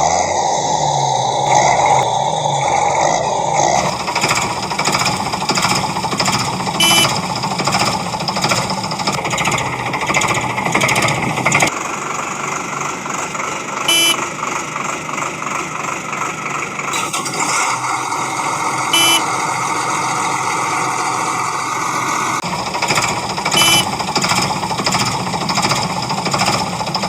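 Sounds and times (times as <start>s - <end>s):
machine running: 3.8s - 27.0s
short high beeps: 6.8s - 7.2s, 13.9s - 14.2s, 19.0s - 19.3s, 23.6s - 23.9s.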